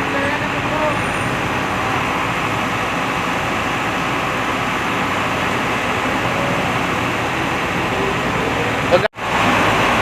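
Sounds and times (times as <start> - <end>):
crane engine humming: 0.0 - 10.0.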